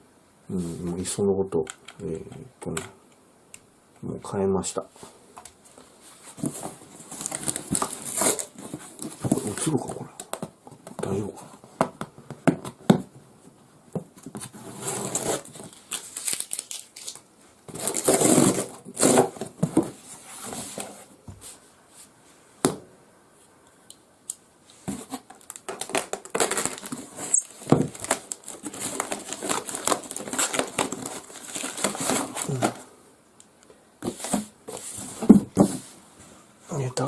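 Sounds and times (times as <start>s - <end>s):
packaging rustling and crinkling: 5.0s - 11.8s, 14.2s - 21.1s, 24.8s - 32.9s, 34.0s - 36.0s.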